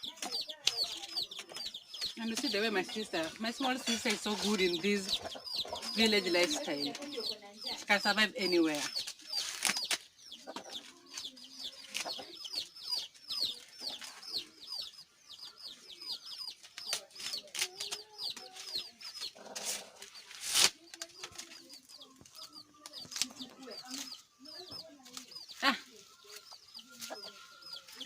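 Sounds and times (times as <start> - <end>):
chickens clucking: 0.0 - 28.0
chicks peeping: 0.0 - 28.0
dry maize husks tearing: 9.0 - 10.0, 16.7 - 18.0, 19.4 - 21.6, 22.2 - 24.1.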